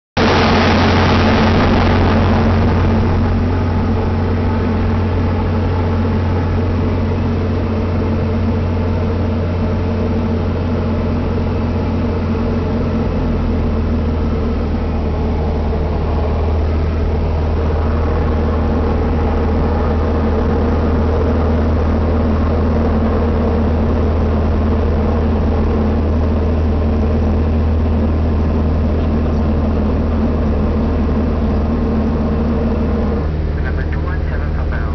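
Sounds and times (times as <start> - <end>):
rushing air: 0.2 - 33.8
jet engine drone: 0.2 - 34.9.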